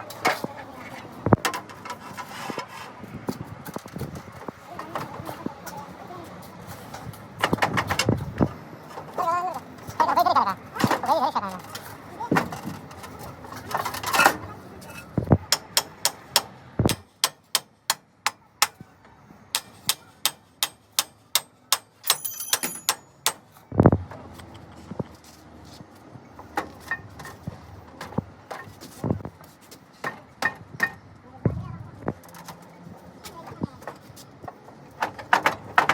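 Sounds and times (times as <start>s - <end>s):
hammer striking steel: 15.5s - 18.8s, 19.5s - 23.5s
metallic ring: 21.9s - 23.2s.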